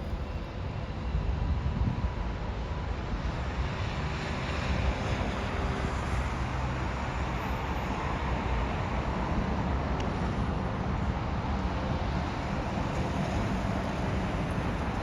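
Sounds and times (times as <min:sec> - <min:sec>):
wind buffeting microphone: 0:00.0 - 0:03.7.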